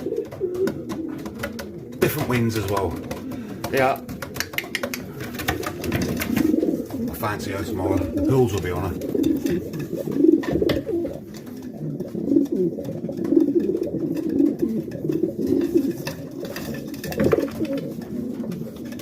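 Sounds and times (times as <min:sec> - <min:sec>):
sharp taps or wing flutters: 0:00.0 - 0:11.6
pigeons cooing: 0:00.0 - 0:19.0.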